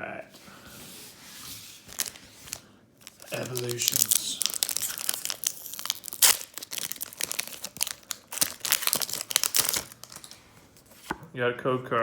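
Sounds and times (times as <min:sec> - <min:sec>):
foil wrapper crinkling and tearing: 0:01.9 - 0:10.4.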